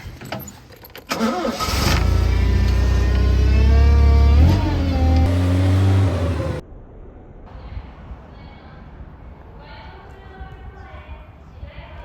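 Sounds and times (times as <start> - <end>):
engine cranking and idling: 0.9 - 6.6.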